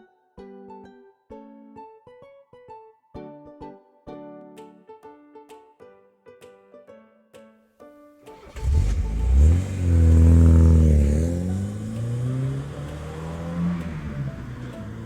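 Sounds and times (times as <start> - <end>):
vehicle engine revving: 8.4 - 15.0.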